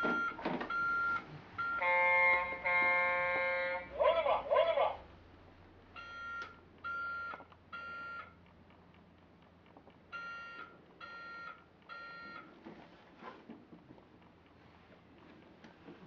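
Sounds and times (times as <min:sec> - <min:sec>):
toy truck short beeps: 0:06.0 - 0:08.3, 0:10.1 - 0:12.4.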